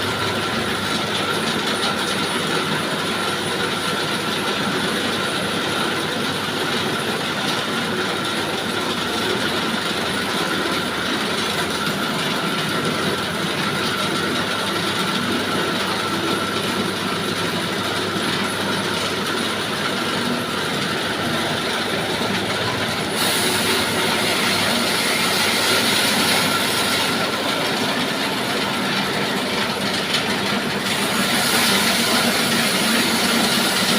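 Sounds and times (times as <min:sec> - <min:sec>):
high even machine whine: 0:17.2 - 0:33.9
sawmill sawing timber: 0:23.0 - 0:29.2, 0:30.4 - 0:33.9.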